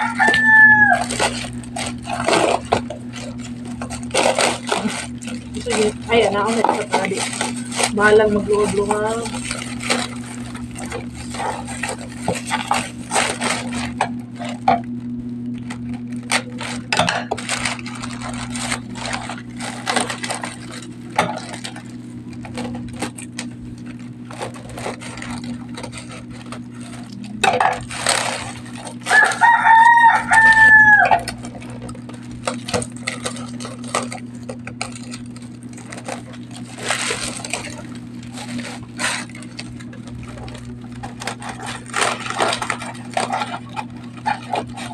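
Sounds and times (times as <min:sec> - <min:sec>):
rooster crowing: 0:00.0 - 0:01.6, 0:29.0 - 0:31.3
low hum: 0:00.0 - 0:44.9
packaging rustling and crinkling: 0:00.0 - 0:44.9.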